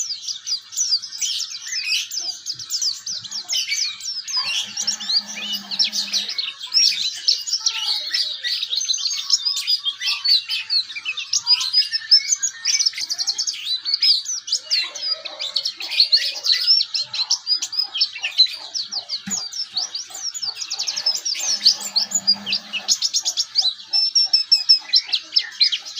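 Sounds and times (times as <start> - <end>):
bird twittering warble: 1.7 - 7.0, 17.3 - 25.9.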